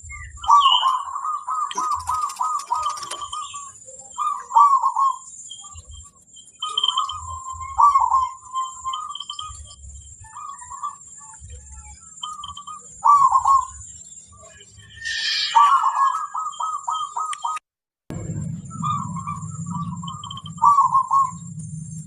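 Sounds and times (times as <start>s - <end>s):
doves cooing: 0.0s - 17.6s, 18.7s - 21.6s
small chirps: 0.1s - 17.6s.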